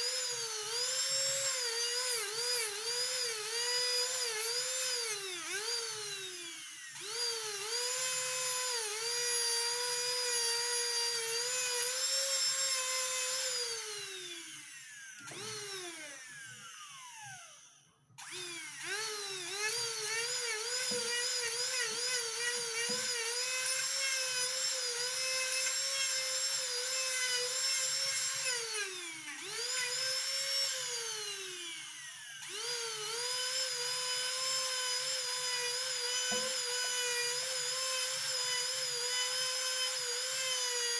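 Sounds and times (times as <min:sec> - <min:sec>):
rotary tool whining: 0:00.0 - 0:40.9.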